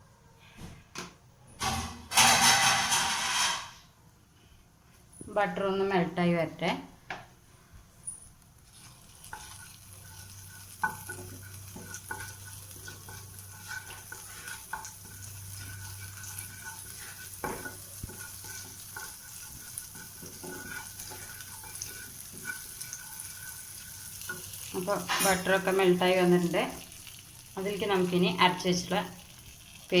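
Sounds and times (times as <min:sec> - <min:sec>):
butter sizzling in a hot pan: 0:08.5 - 0:30.0.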